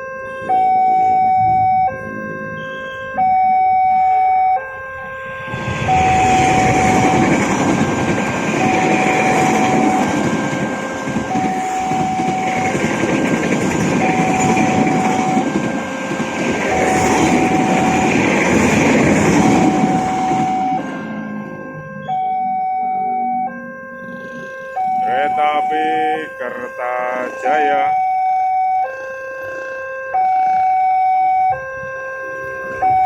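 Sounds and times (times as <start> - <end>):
two-tone crossing warning alarm: 0.0 - 33.0
train wheels rumbling on rails: 5.5 - 21.1.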